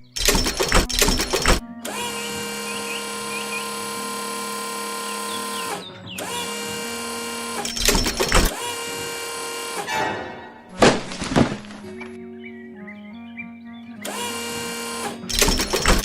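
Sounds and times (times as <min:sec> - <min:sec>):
machine whirr: 0:00.0 - 0:10.8, 0:14.0 - 0:16.0.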